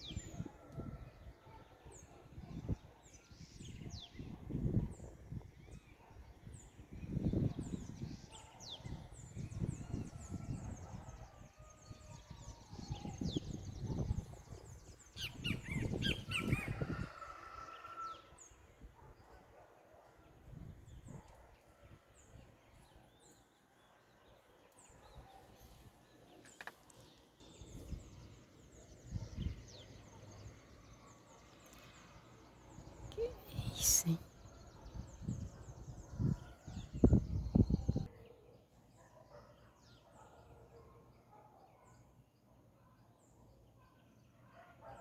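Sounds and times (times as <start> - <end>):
small birds chirping: 12.2 - 17.2.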